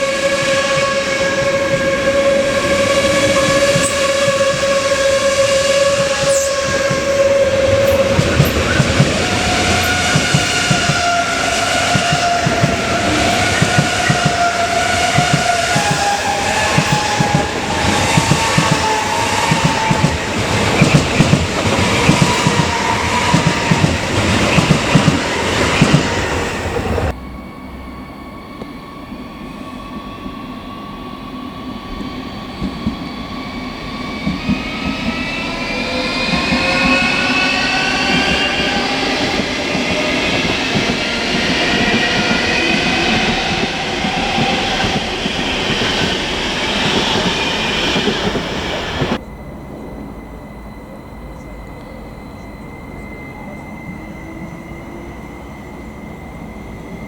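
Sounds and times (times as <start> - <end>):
electric train motors whining: 0.0 - 57.0
train wheels clattering over rail joints: 2.8 - 27.1.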